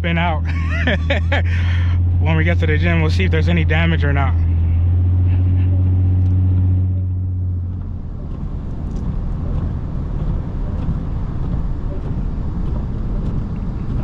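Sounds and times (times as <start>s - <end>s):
car engine droning: 0.0s - 14.0s
tyre and road noise: 0.0s - 14.0s.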